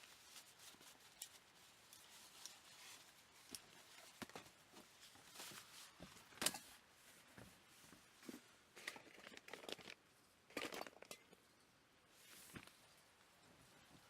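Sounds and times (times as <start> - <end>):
objects handled clicking and rustling: 0.0 - 6.8, 8.2 - 11.6.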